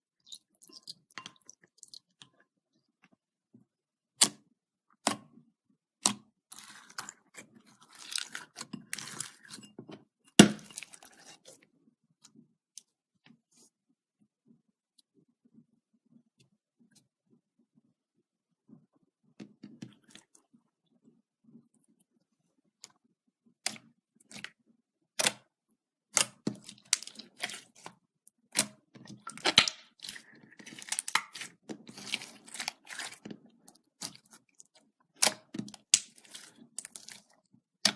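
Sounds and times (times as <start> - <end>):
slime squishing and crackling: 6.5 - 9.7, 26.1 - 37.9.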